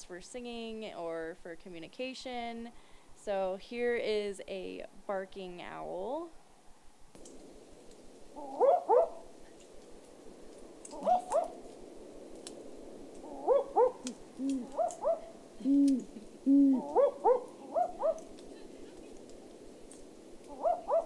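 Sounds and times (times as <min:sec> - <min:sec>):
owl calls over loudspeaker: 0:11.0 - 0:11.5.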